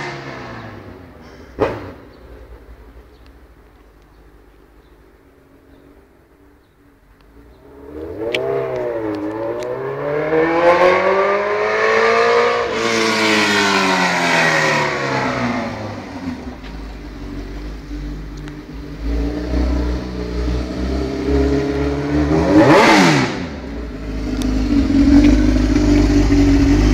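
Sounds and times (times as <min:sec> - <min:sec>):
loud motorcycle engine: 0:00.0 - 0:02.0, 0:07.5 - 0:26.9.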